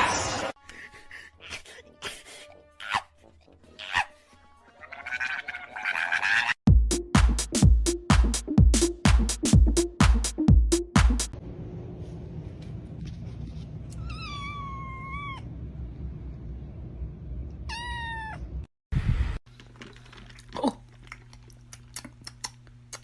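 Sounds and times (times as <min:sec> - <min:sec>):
cat meowing: 0:04.8 - 0:06.6, 0:14.0 - 0:15.5, 0:17.7 - 0:18.5
low steady hum: 0:11.4 - 0:23.0.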